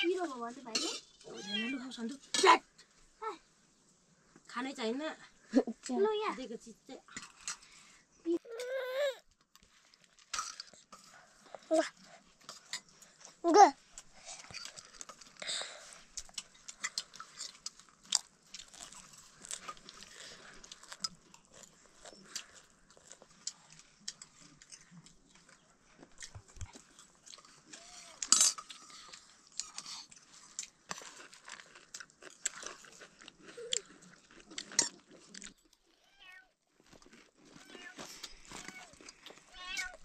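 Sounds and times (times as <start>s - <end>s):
crunchy snack chewing: 13.9s - 36.0s, 36.8s - 40.0s.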